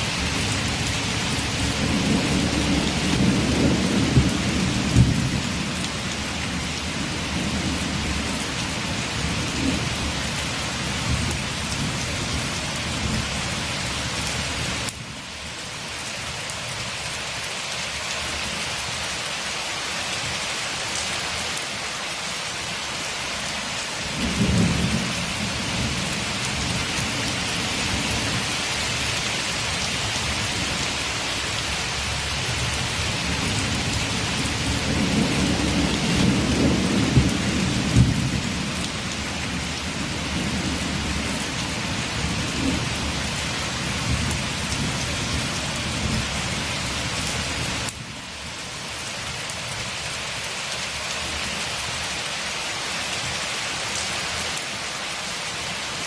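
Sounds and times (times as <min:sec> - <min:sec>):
thunder rumbling: 0:00.0 - 0:10.2, 0:24.1 - 0:28.9, 0:32.0 - 0:47.0
steady rain: 0:00.0 - 0:56.0.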